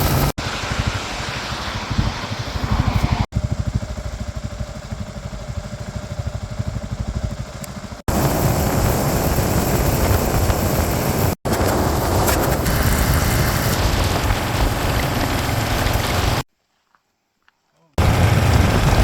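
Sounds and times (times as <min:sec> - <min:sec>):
wind and road noise: 0:00.0 - 0:16.5, 0:18.0 - 0:19.0
motorcycle engine idling: 0:03.3 - 0:11.4.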